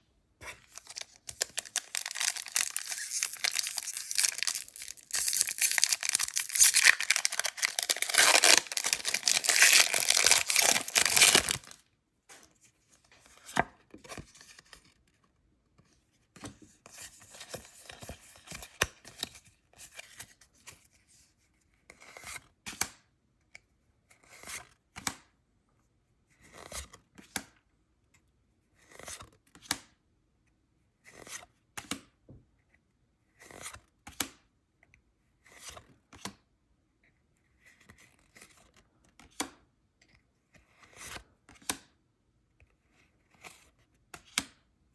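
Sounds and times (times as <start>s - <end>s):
cards sliding and flipping: 0.4s - 11.8s, 40.7s - 41.8s
foil wrapper crinkling and tearing: 0.6s - 11.8s.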